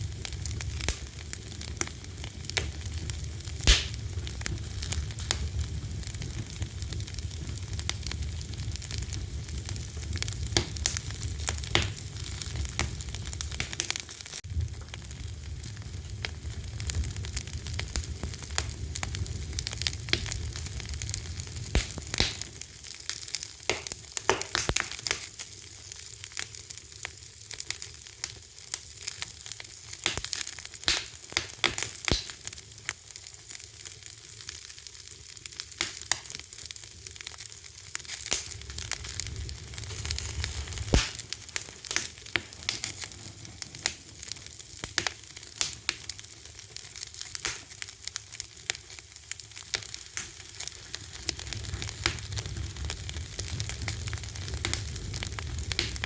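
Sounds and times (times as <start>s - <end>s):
low rumble of flames: 0.0s - 56.0s
wood fire crackling: 0.0s - 56.0s.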